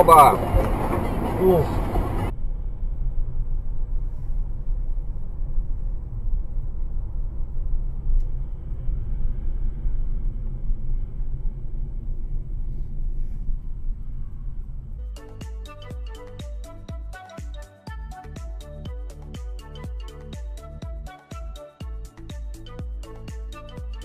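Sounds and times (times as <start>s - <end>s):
vehicle rumble: 0.0s - 17.2s
music with a beat: 15.0s - 24.0s.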